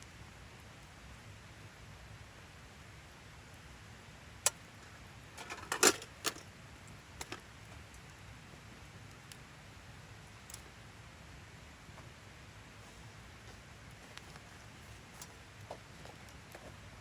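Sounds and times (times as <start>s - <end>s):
sharp clicks and clinks: 5.4s - 6.4s.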